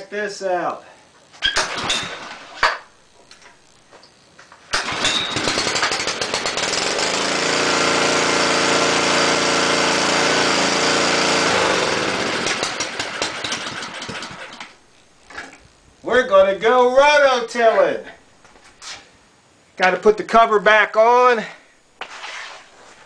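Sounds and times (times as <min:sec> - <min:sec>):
small engine starting and running: 0:01.5 - 0:02.8, 0:04.7 - 0:14.8.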